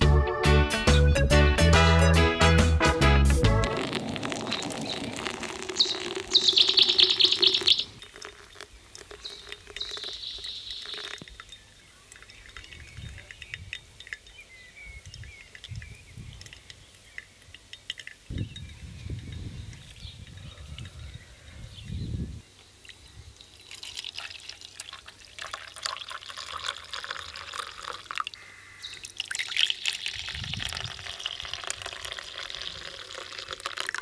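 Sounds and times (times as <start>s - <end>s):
low thumps: 2.6s - 5.4s
birds chirping: 3.5s - 23.8s, 28.3s - 30.2s
rapid high bird trill: 3.8s - 15.8s.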